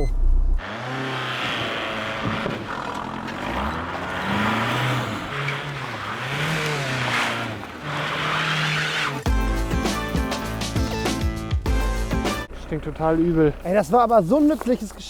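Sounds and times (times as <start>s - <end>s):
car engine revving: 0.0s - 9.3s.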